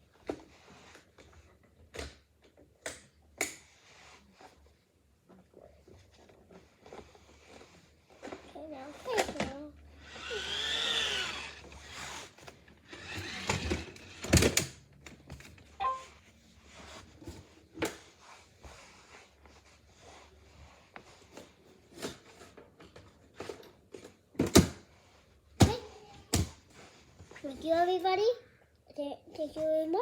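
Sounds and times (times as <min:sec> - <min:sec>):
faint high tone: 0:15.8 - 0:16.1.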